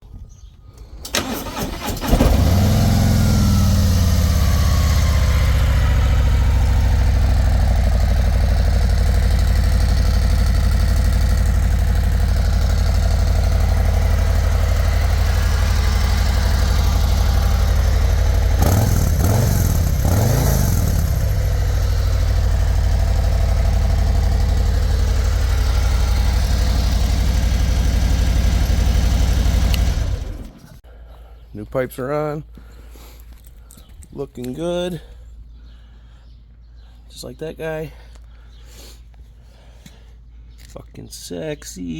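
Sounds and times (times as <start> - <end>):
starter cranking engine: 1.0 - 30.8
motorcycle engine idling: 1.4 - 30.9.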